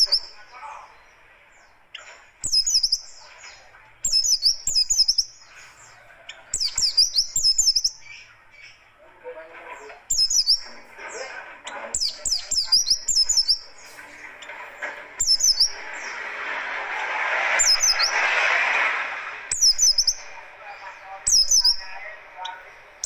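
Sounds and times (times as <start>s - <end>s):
bird chirping song: 0.0s - 16.5s, 17.6s - 18.4s, 19.5s - 23.0s
background hiss: 10.0s - 23.0s.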